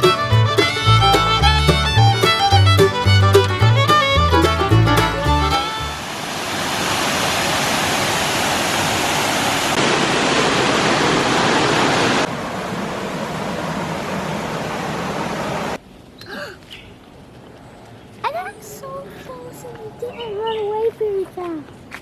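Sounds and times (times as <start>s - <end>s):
fiddle music: 0.0s - 6.1s
waterfall roaring: 5.6s - 15.8s.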